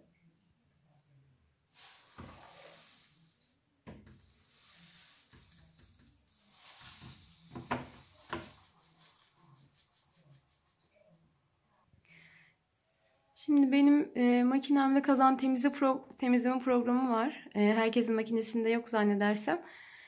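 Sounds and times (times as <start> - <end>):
liquid pouring hiss: 1.7 - 10.0.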